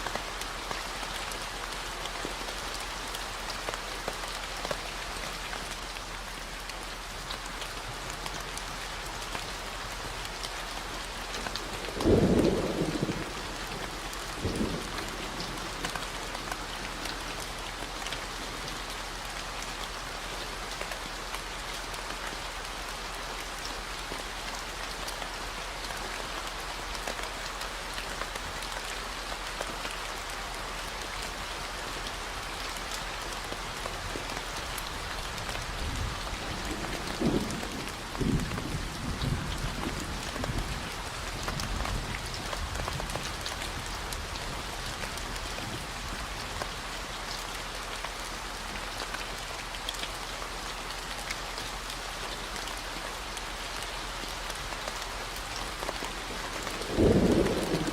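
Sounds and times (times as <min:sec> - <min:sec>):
rain falling on surface: 0:00.0 - 0:57.9
thunder clap: 0:56.8 - 0:57.9.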